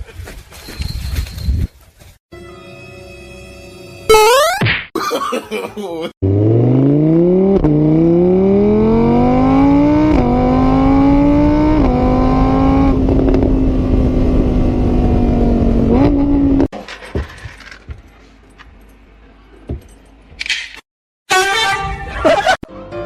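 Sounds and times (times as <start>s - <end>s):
engine accelerating through gears: 6.2s - 16.7s.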